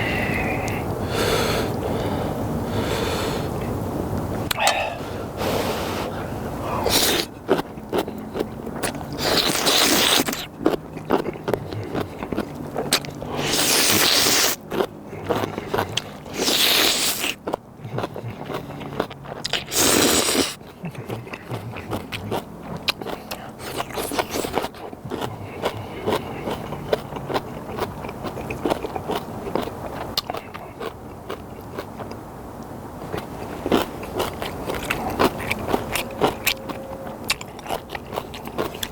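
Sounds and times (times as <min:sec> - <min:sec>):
chewing and mouth clicks: 0:04.4 - 0:05.0, 0:06.1 - 0:38.9
loud slurps of noodles: 0:13.3 - 0:14.6, 0:19.7 - 0:20.6.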